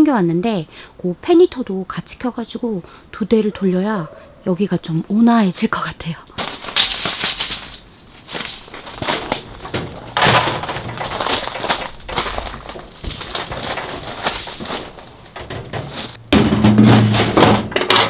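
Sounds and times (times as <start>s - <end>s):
objects clattering and crackling: 6.4s - 18.0s.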